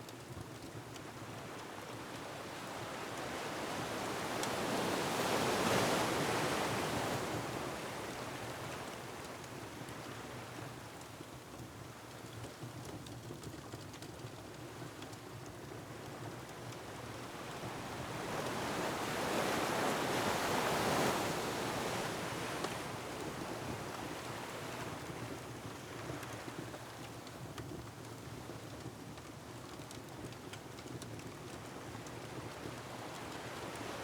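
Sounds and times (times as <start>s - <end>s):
wood fire crackling: 26.5s - 32.8s.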